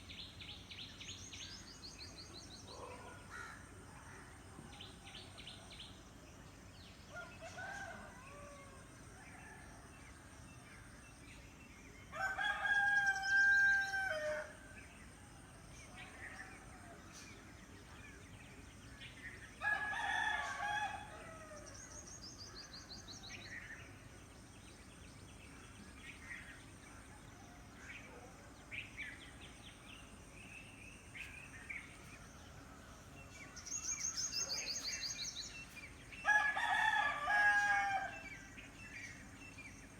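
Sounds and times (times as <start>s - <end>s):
small birds chirping and trilling: 9.3s - 39.9s
rooster crowing: 36.2s - 38.3s.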